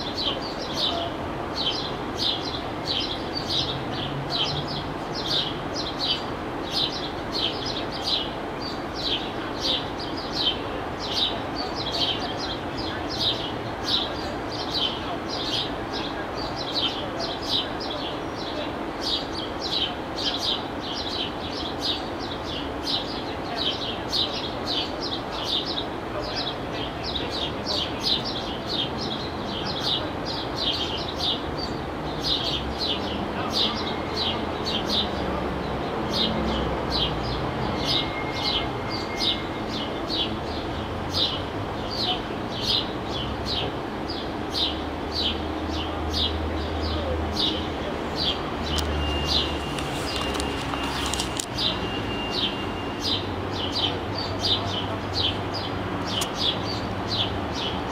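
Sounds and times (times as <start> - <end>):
bird chirping high: 48.2 - 54.6.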